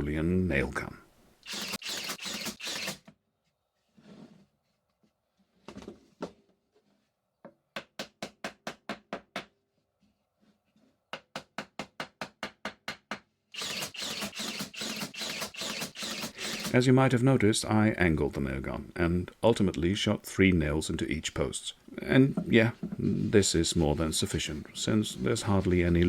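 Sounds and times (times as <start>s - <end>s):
nail gun firing into wood: 1.4s - 3.1s, 13.6s - 16.8s.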